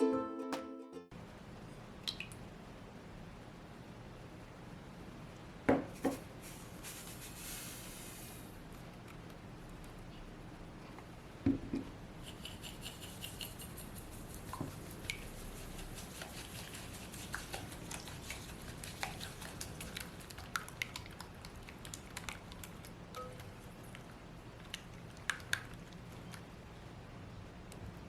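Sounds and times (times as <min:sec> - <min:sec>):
utensils clicking and tapping: 0:12.3 - 0:15.2.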